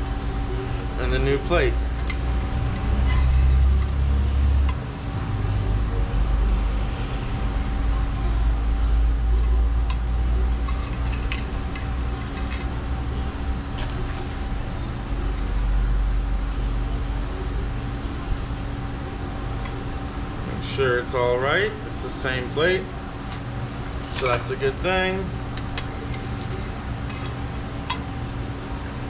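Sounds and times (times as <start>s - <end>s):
faint hum: 0.0s - 29.0s
small metal parts clicking: 10.6s - 12.7s.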